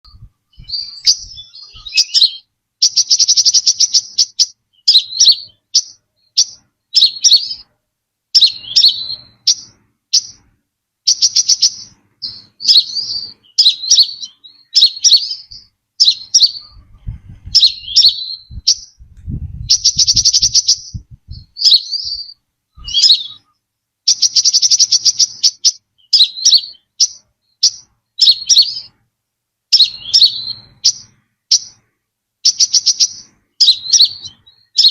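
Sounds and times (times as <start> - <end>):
buzzy bird trills: 0.1 - 7.7, 8.3 - 10.5, 11.1 - 29.0, 29.7 - 34.9
bird calling high notes: 0.5 - 7.6
low rumble: 18.4 - 20.2, 20.8 - 22.2.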